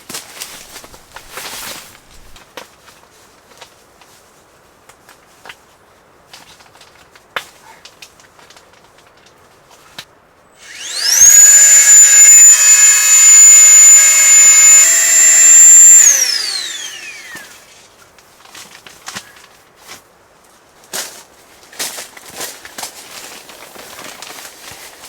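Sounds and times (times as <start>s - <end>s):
small electric motor whining: 0.6s - 2.4s, 10.6s - 17.8s.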